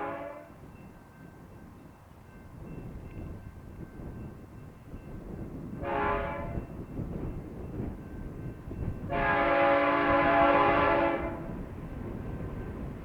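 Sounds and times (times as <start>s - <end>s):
locomotive air horn blasts: 0.0s - 0.6s, 5.8s - 6.6s, 9.1s - 11.6s
train rumbling past: 0.0s - 13.0s.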